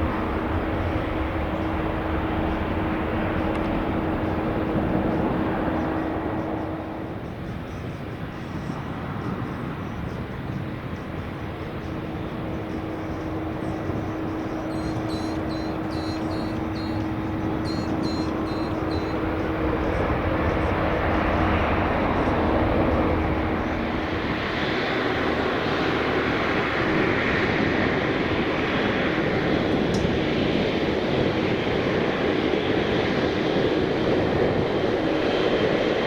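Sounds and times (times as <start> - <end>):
jet engine roar: 0.0 - 36.0.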